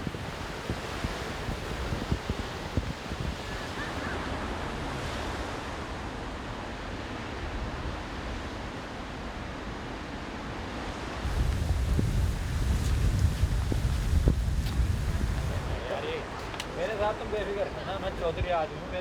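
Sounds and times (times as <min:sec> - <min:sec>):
wind buffeting microphone: 0:00.0 - 0:04.2, 0:11.2 - 0:16.7
rushing storm wind: 0:00.0 - 0:09.6, 0:11.0 - 0:16.4.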